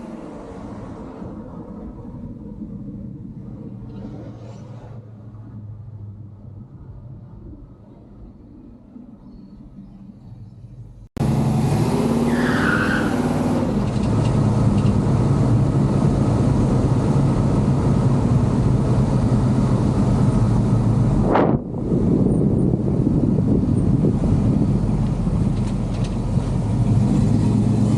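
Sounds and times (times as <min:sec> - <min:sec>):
loud car engine driving: 0:11.2 - 0:27.9
high squeal: 0:12.2 - 0:13.3.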